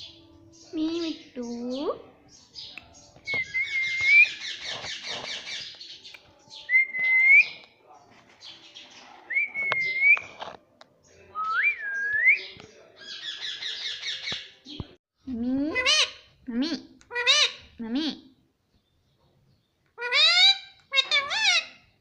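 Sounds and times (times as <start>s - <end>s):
parrot buzzy chatter: 4.2s - 5.8s.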